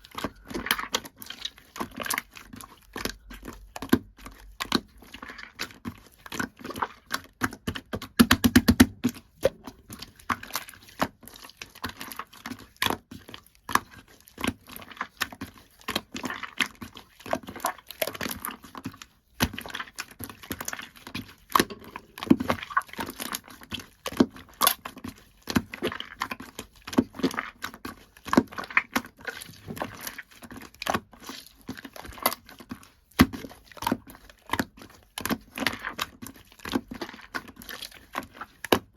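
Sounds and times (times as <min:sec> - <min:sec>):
slime squished by hand: 0:00.0 - 0:38.9
sticky pops and crackles: 0:07.1 - 0:09.6.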